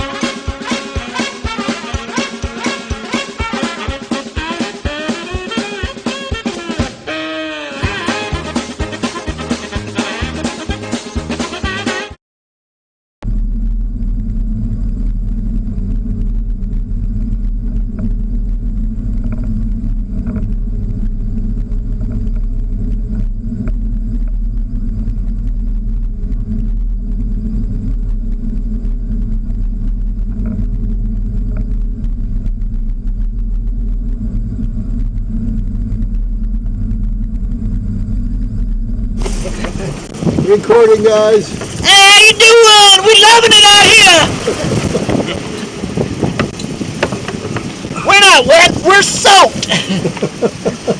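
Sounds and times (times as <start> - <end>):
boat engine droning: 13.3 - 50.9.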